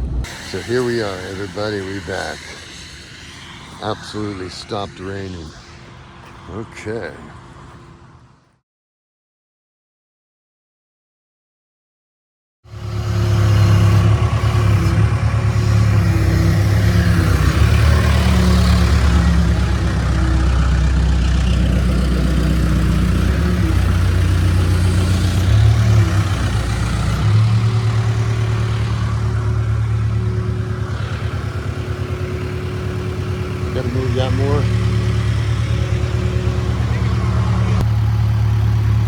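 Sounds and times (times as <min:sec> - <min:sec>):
construction equipment engine under load: 0:12.7 - 0:39.0.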